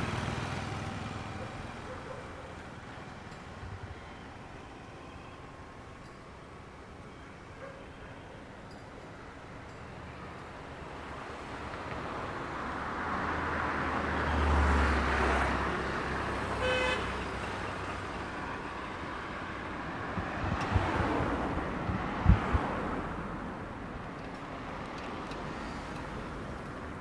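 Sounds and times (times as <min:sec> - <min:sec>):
vehicle passing by: 0:00.0 - 0:01.8, 0:13.1 - 0:16.6.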